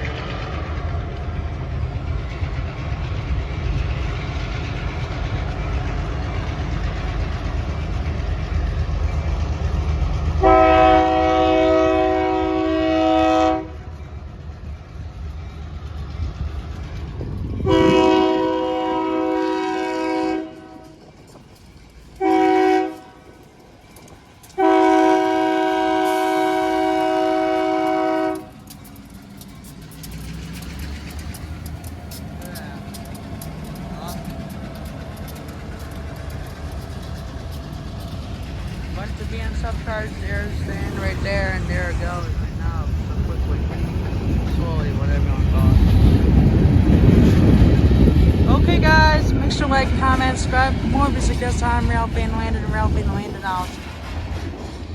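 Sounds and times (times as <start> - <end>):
diesel locomotive rumbling: 0.0 - 54.9
locomotive air horn: 10.4 - 13.9, 17.6 - 21.0, 22.2 - 23.1, 24.6 - 28.6.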